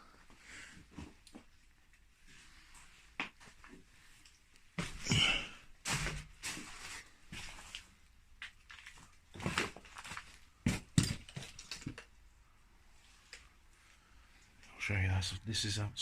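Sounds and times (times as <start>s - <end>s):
footsteps on debris: 8.7s - 12.0s.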